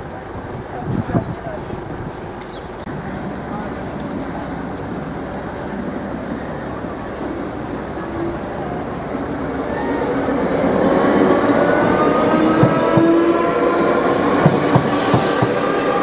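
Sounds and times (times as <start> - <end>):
electric train motors whining: 9.5 - 16.0
train wheels clicking over rail joints: 12.4 - 16.0.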